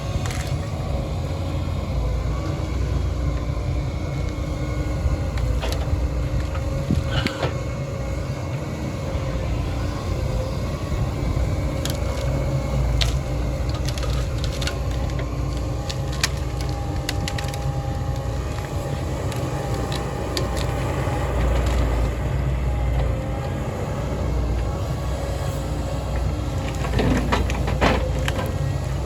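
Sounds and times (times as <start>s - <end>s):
heavy diesel machinery running: 0.0s - 29.0s
sharp knocks and cracks: 26.6s - 28.7s.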